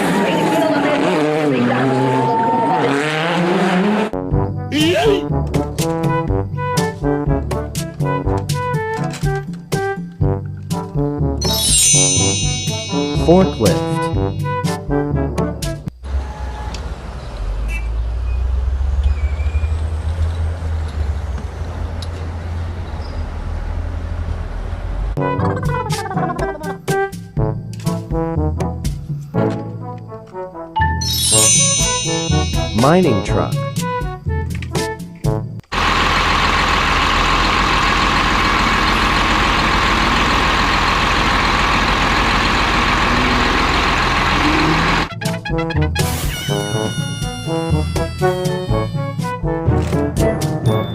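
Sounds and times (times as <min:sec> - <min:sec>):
engine low rumble: 0:12.3 - 0:28.3, 0:32.4 - 0:45.1.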